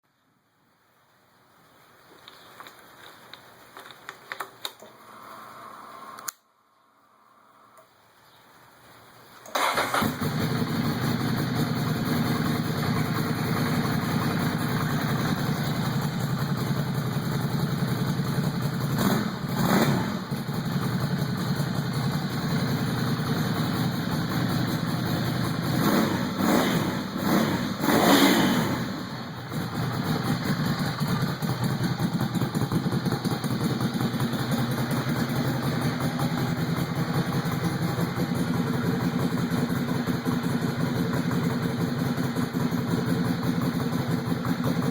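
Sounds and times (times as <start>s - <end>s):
motorcycle engine idling and revving: 9.6s - 44.9s.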